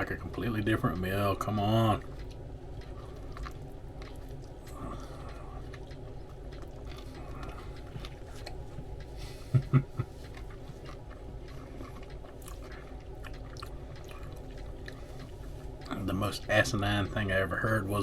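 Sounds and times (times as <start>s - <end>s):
low background hum: 0.0s - 18.0s
person chewing food: 0.1s - 16.1s.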